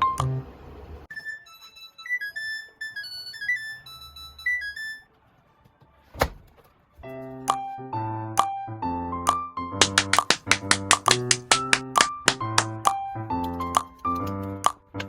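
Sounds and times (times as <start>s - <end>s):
background music with beat: 7.3s - 15.0s.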